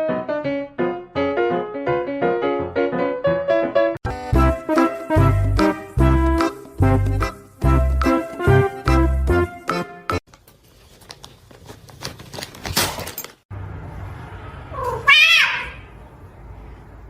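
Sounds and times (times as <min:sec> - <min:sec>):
cat meowing: 0:14.7 - 0:15.9.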